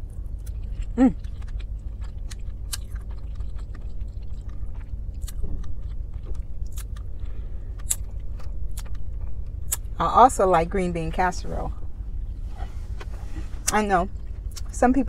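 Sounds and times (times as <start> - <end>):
chewing green beans: 0.0 - 9.9
steady low rumble: 0.0 - 15.0.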